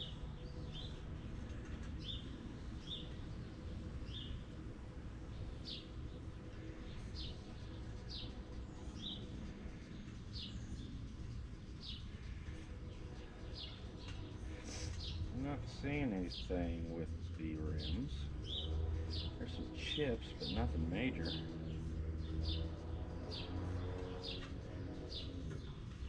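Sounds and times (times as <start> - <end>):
small bird chirping: 0.0 - 4.6, 5.3 - 26.0
low background rumble: 0.0 - 26.0.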